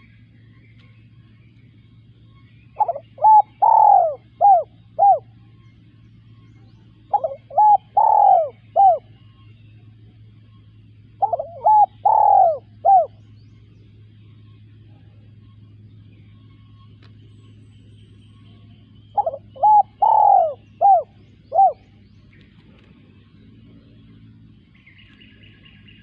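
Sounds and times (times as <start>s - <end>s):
dove cooing: 2.7s - 5.5s, 6.9s - 9.5s, 10.9s - 13.3s, 18.6s - 23.8s.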